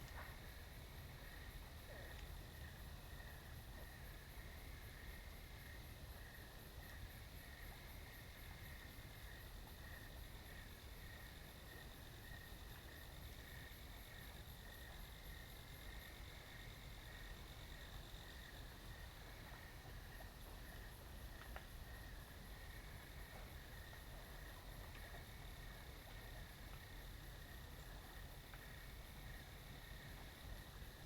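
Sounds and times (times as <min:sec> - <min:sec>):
crickets chirping: 0:00.0 - 0:31.0
low background hum: 0:00.0 - 0:31.0.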